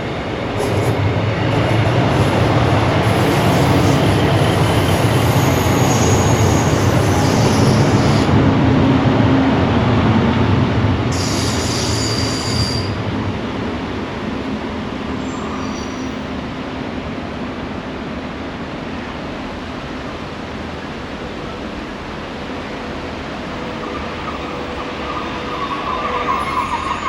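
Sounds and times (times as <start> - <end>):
train passing: 0.0 - 27.0
high wheel squeal: 5.1 - 8.3, 11.2 - 13.0, 15.2 - 16.4, 23.8 - 27.0.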